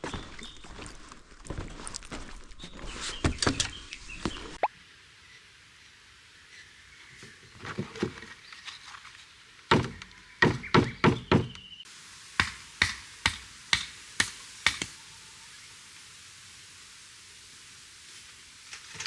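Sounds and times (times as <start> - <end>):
sharp chopping knocks: 9.7 - 11.6, 12.4 - 14.9.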